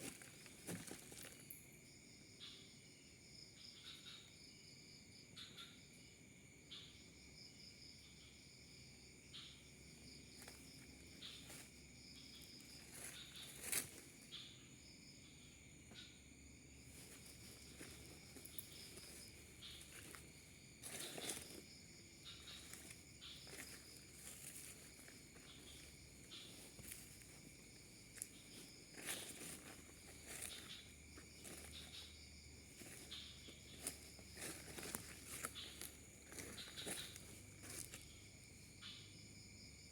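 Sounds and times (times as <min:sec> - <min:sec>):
footsteps rustling in undergrowth: 0:00.0 - 0:01.5, 0:10.3 - 0:14.4, 0:16.8 - 0:38.9
insects chirring: 0:00.0 - 0:39.9.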